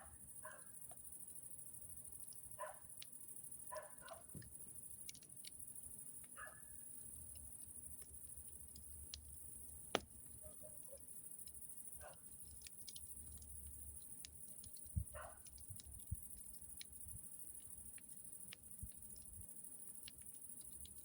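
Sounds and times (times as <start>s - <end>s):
campfire crackling: 0.0s - 21.0s
fire popping: 0.7s - 21.0s.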